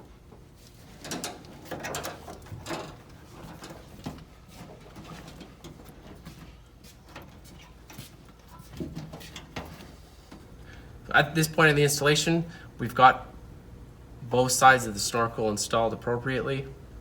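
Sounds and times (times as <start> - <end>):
handling noises: 0.0 - 10.6.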